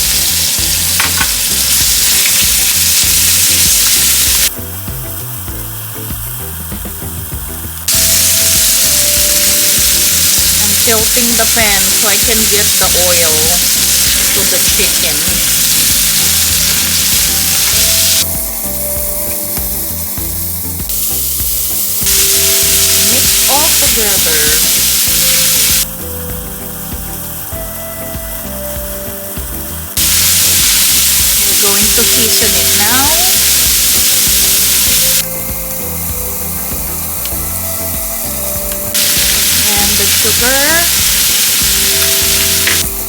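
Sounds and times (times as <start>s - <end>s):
chicken sizzling in hot oil: 0.0s - 43.0s.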